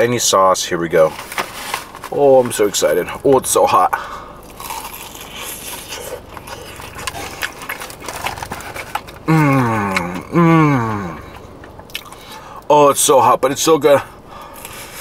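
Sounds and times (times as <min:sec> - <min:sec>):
man chewing crispy food: 0:03.7 - 0:12.7, 0:14.3 - 0:15.0
man moaning: 0:09.3 - 0:11.4.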